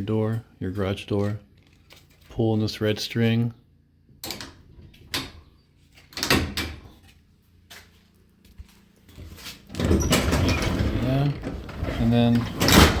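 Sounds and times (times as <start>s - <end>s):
garage door hardware clicks and clunks: 4.2s - 7.0s, 9.7s - 13.0s.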